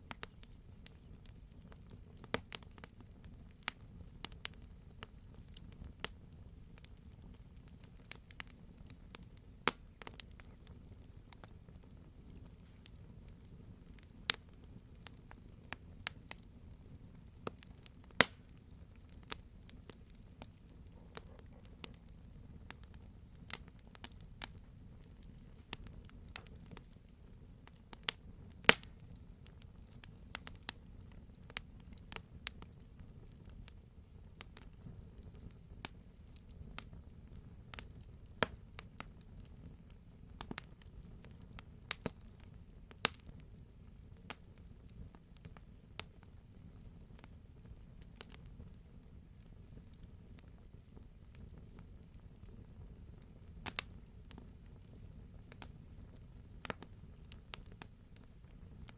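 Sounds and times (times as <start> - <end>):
campfire crackling and popping: 0.0 - 58.9.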